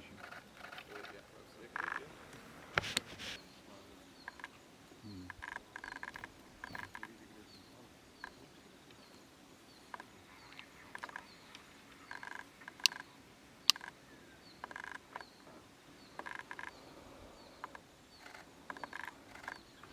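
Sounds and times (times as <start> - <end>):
animals calling in rapid pulses: 0.0 - 3.4, 4.0 - 8.5, 9.8 - 14.0, 14.6 - 19.9
sharp clicks: 5.3 - 7.1, 9.9 - 13.0, 13.7 - 14.0.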